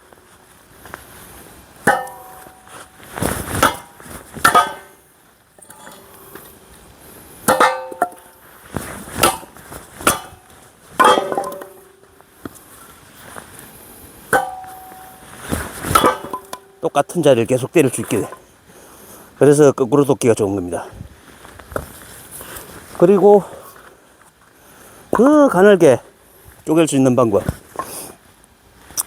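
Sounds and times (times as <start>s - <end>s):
hammer striking metal axe: 1.9s - 2.9s, 3.6s - 5.0s, 5.6s - 6.6s, 7.5s - 8.4s, 9.2s - 12.1s, 14.3s - 16.8s.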